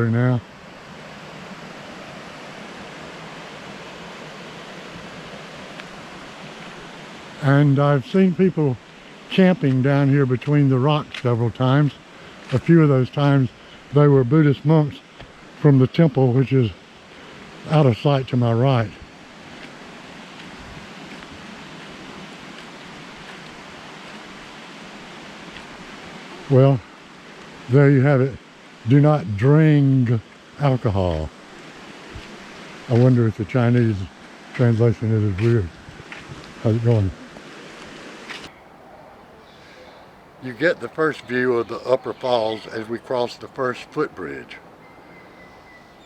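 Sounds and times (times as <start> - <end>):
stream flowing over boulders: 0.0 - 7.9, 31.2 - 33.0
stream rushing over boulders: 0.0 - 14.2, 16.7 - 17.7, 19.0 - 27.8, 28.4 - 46.0.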